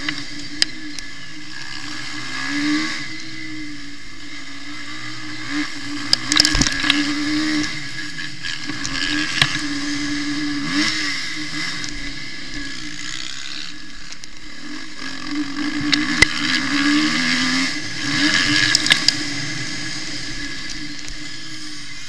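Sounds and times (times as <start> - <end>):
motorcycle engine revving: 0.0 - 22.0
sharp clicks: 6.1 - 7.0, 18.5 - 19.3.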